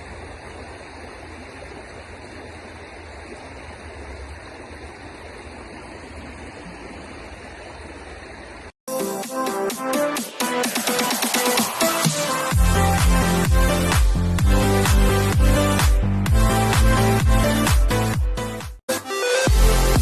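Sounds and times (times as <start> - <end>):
river water flowing: 0.0 - 18.2
electronic dance music: 8.9 - 20.0.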